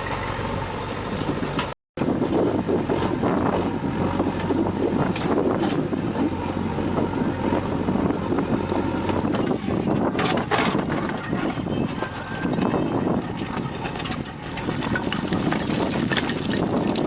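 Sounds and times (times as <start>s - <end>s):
diesel engine running under load: 0.0s - 17.0s
knocks and rattles: 9.0s - 17.0s.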